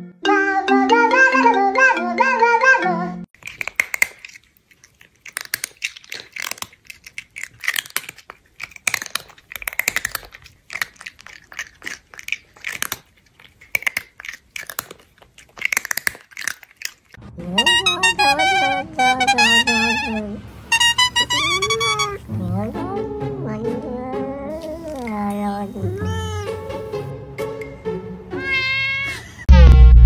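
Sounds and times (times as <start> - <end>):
crunchy chewing: 3.4 - 17.2.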